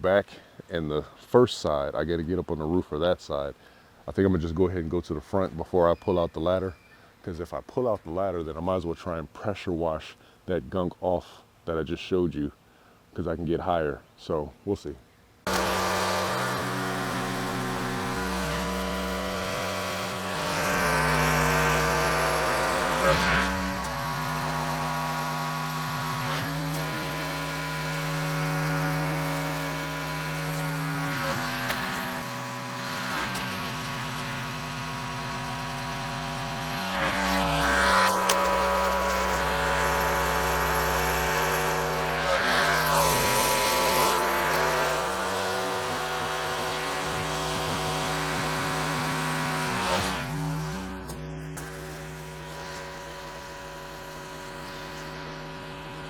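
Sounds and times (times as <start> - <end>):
pressure washer engine running: 15.5 - 56.0.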